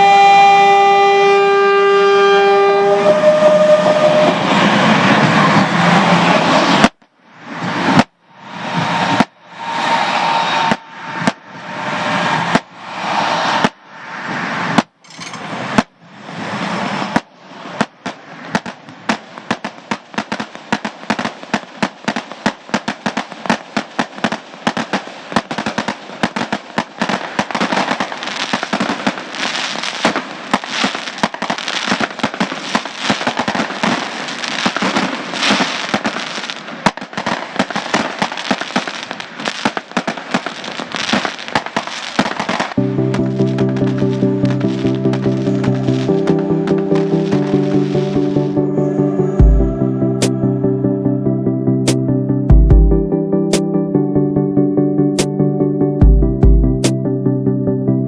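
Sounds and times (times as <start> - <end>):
fireworks crackling pops: 6.3 - 8.2, 9.1 - 9.4, 10.7 - 11.4, 13.6 - 13.8, 14.7 - 46.4.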